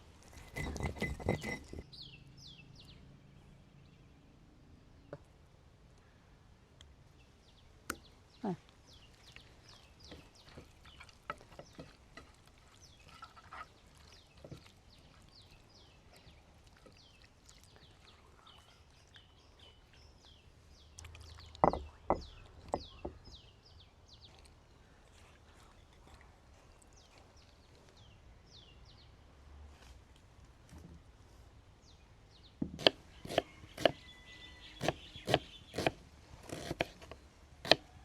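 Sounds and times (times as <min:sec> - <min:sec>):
small birds chirping: 0:00.3 - 0:04.2, 0:07.1 - 0:29.3, 0:31.8 - 0:38.0.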